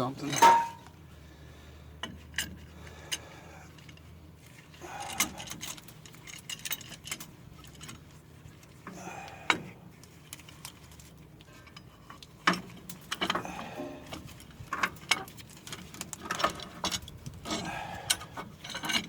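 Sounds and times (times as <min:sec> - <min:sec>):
metal tools clinking: 0:00.1 - 0:00.9, 0:10.4 - 0:19.0.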